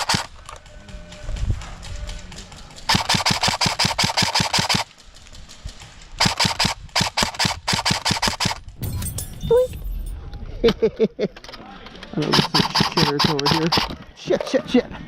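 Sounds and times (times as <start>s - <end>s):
airsoft gun firing full-auto: 0.0s - 0.4s, 2.9s - 4.9s, 6.2s - 8.6s, 12.3s - 14.0s.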